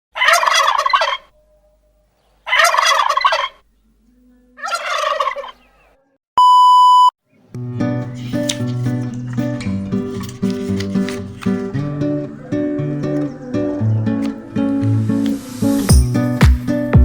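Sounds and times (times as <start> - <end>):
turkey gobbling: 0.2 - 1.4, 2.2 - 3.6, 4.6 - 5.9
electronic beep: 6.4 - 7.1.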